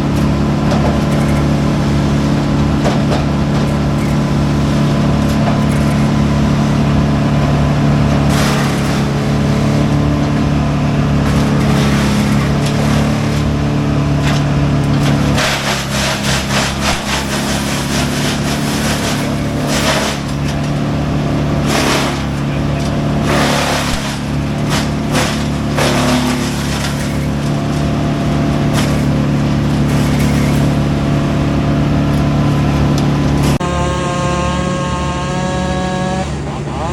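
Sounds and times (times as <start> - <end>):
heavy diesel machinery running: 0.0 - 36.9.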